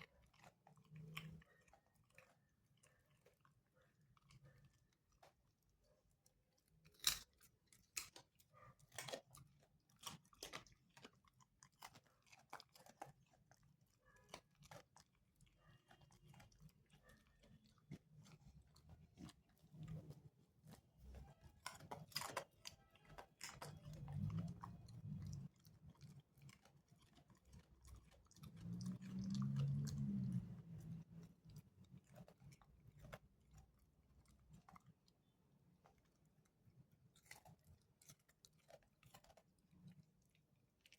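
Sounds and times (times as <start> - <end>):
dog crunching a carrot: 0.0 - 40.9.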